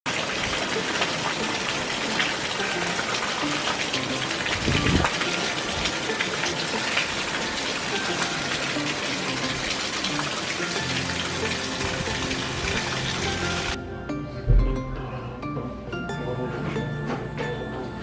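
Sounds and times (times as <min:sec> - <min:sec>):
water rushing: 0:00.1 - 0:13.8.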